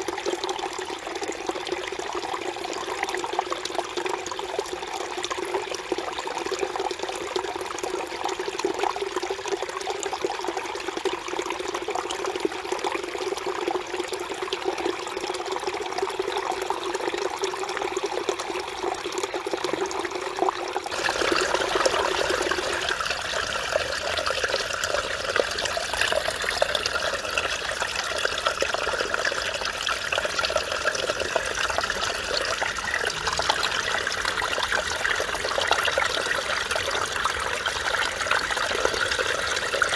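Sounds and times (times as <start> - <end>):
stream babbling over rocks: 20.9 - 39.9.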